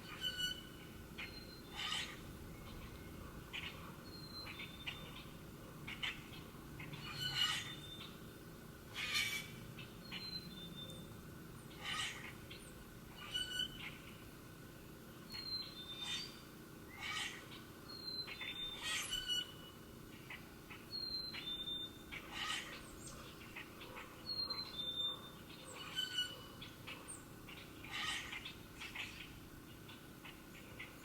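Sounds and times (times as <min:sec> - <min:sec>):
birds whistling: 0:20.9 - 0:23.6, 0:24.3 - 0:29.2.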